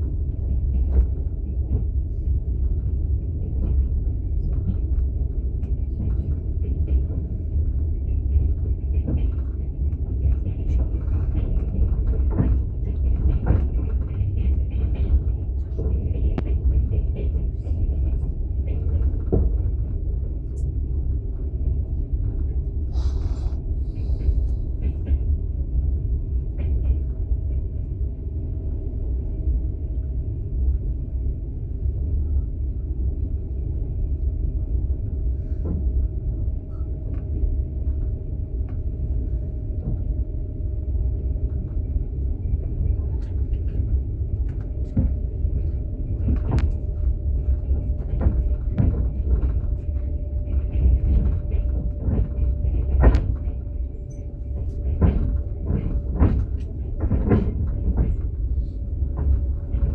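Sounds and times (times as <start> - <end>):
train rumbling on rails: 0.0 - 59.9.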